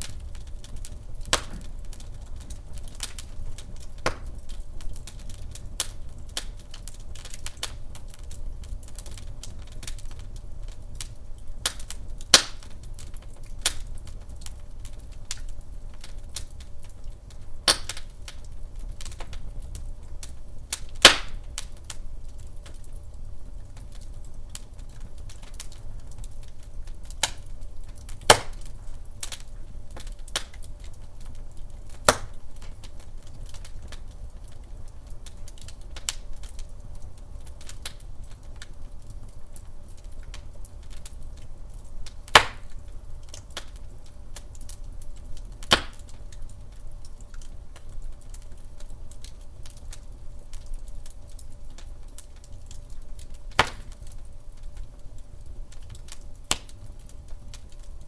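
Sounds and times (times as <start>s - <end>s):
fire crackling: 0.0s - 58.0s
low fire rumble: 0.0s - 58.0s
loud sharp log pops: 21.1s - 21.4s, 28.3s - 28.6s, 32.1s - 32.3s, 42.4s - 42.6s, 45.7s - 46.0s, 53.5s - 54.0s.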